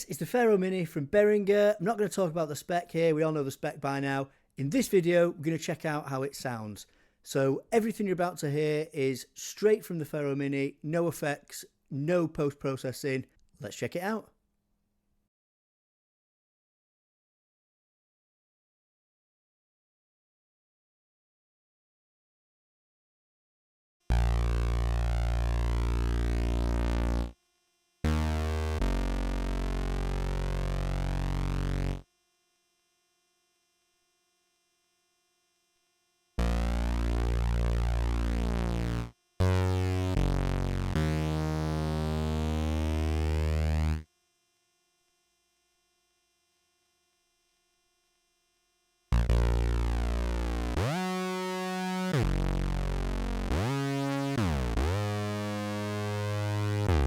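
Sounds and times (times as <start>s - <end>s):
synthesizer held notes: 28.1s - 32.0s, 36.4s - 44.0s, 49.1s - 57.0s.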